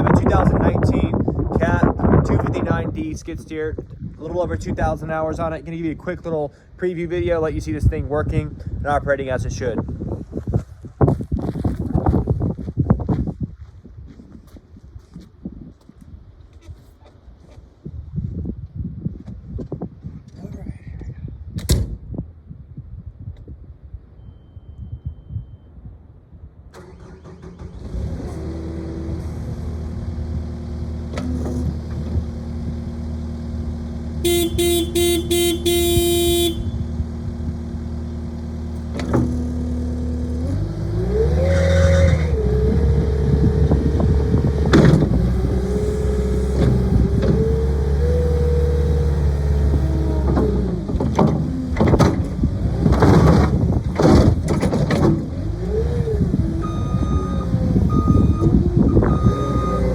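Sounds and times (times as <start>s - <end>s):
diesel engine idling and revving: 26.8s - 59.9s.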